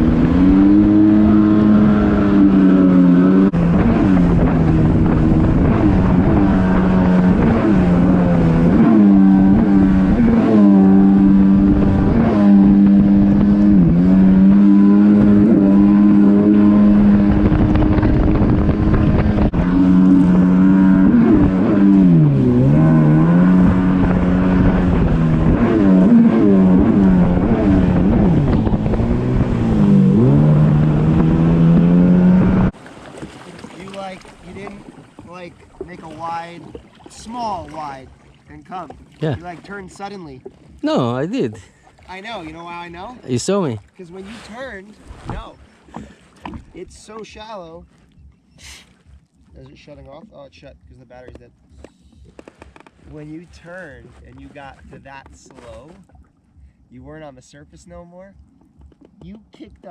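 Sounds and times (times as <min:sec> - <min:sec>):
jet ski engine running: 0:00.0 - 0:47.5.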